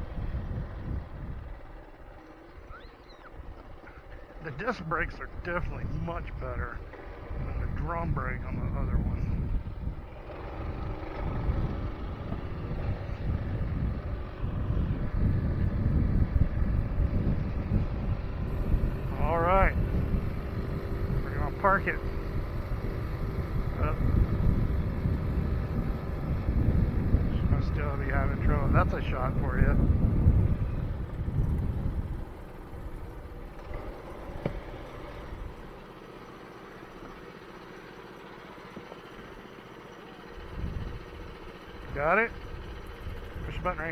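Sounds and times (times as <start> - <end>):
wind buffeting microphone: 0.0 - 1.9, 2.8 - 35.6, 40.4 - 43.9
mini bike engine running: 0.0 - 4.8, 9.0 - 43.9.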